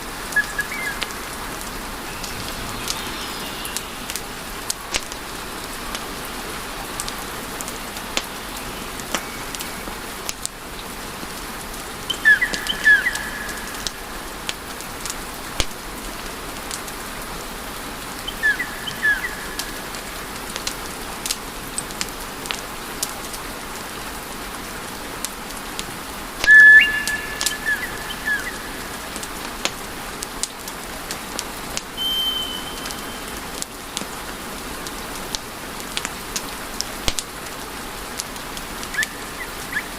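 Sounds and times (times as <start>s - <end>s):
wood fire crackling: 0.4s - 17.0s, 18.4s - 23.4s
fire whistling: 26.4s - 29.0s, 31.9s - 33.4s.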